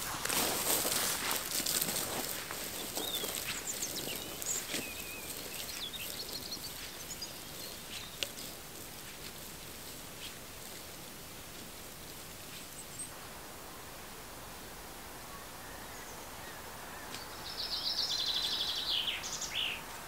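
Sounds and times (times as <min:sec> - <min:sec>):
soft rustling steps: 0:00.0 - 0:13.1
outdoor hiss: 0:00.0 - 0:20.0
small birds chirping: 0:00.6 - 0:10.8, 0:12.4 - 0:13.2, 0:15.3 - 0:20.0.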